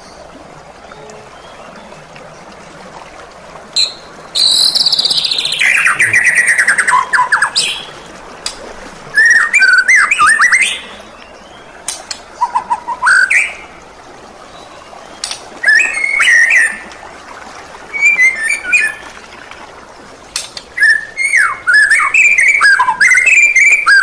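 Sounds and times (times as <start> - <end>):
bird singing rapid notes: 3.8 - 7.9.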